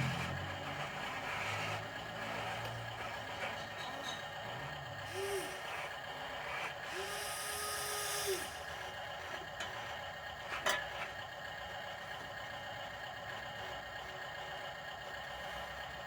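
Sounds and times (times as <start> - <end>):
model truck motor hum: 0.0 - 16.0
motor whir with hiss: 5.0 - 8.9.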